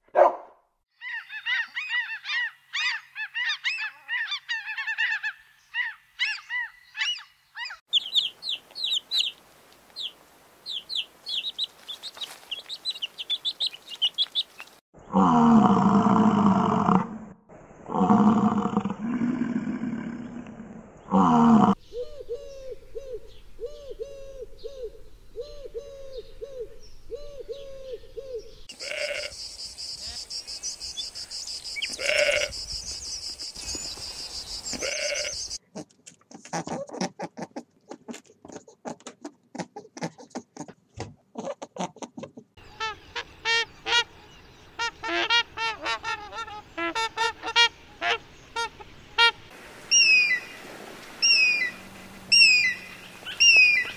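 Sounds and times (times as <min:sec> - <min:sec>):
animal calls: 0:01.0 - 0:08.3, 0:34.6 - 0:40.7, 0:51.2 - 0:53.9.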